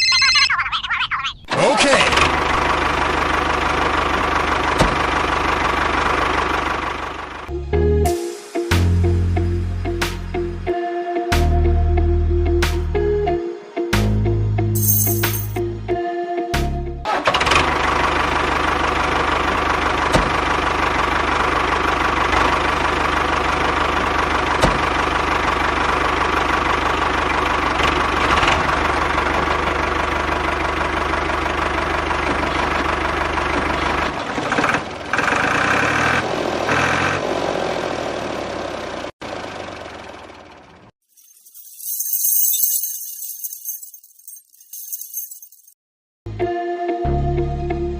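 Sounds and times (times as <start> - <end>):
tractor engine idling with knocking: 2.2 - 7.5, 17.2 - 35.7.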